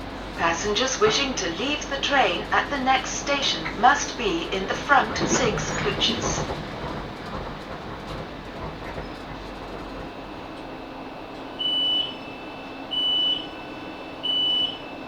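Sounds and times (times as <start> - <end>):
train running hum: 0.0 - 15.0
high-pitched door warning beeps: 11.6 - 14.9.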